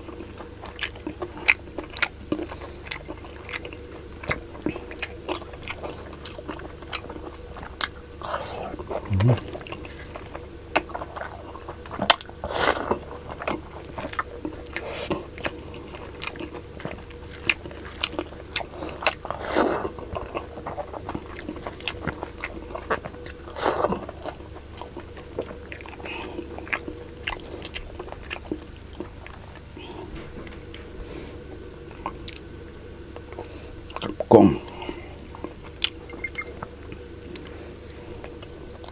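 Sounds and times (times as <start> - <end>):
person chewing food: 0.0 - 32.5, 33.1 - 38.9
steady low hum: 0.0 - 38.9
loud slurping: 8.2 - 9.7.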